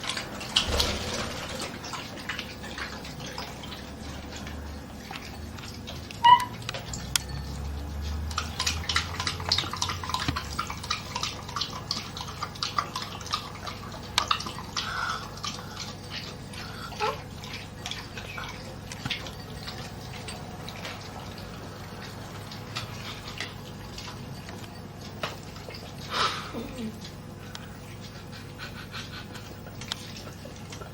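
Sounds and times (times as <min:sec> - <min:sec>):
short high squeak: 0:06.2 - 0:06.6.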